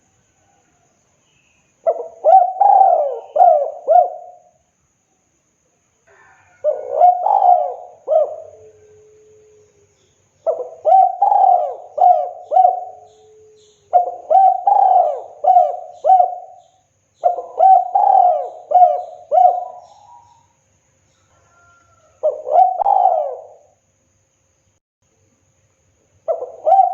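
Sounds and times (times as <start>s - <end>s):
dove cooing: 1.8s - 4.5s, 6.1s - 9.6s, 10.4s - 20.4s, 21.5s - 23.8s, 26.3s - 26.9s.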